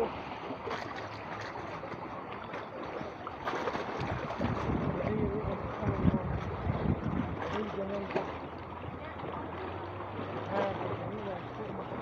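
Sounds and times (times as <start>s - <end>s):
water washing against boat: 0.0s - 12.0s
wind: 0.0s - 12.0s
low rumbling buffeting: 4.0s - 12.0s.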